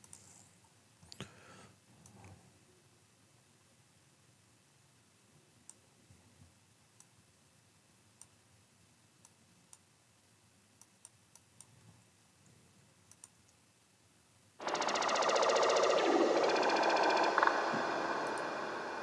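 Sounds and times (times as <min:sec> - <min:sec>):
computer mouse clicks: 0:13.1 - 0:13.6, 0:14.6 - 0:19.0.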